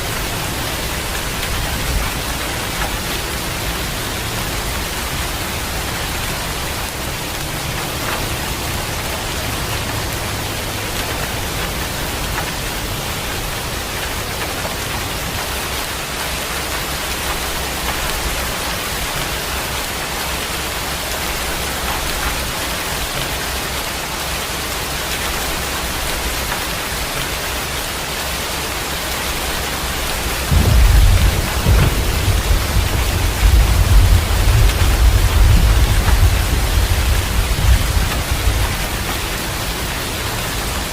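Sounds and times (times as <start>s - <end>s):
heavy rain falling: 0.0s - 40.9s
deep rumble of thunder: 30.3s - 39.7s.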